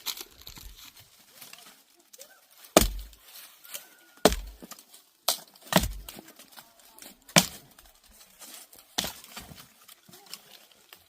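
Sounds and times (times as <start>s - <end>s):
heavy chopping blows: 2.8s - 3.2s, 4.2s - 4.7s, 5.7s - 6.2s, 7.3s - 7.7s.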